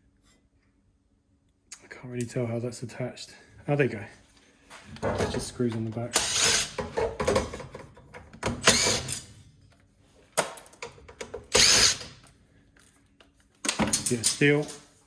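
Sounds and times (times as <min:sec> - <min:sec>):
cordless drill running: 0:06.2 - 0:06.8, 0:08.6 - 0:09.2, 0:11.5 - 0:12.2.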